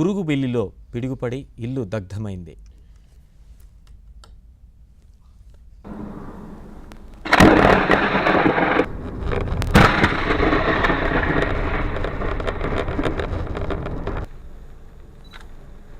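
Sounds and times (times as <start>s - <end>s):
heavy rain: 5.9s - 14.3s
thunder cracks: 5.9s - 14.3s
thunder rumble: 5.9s - 14.3s.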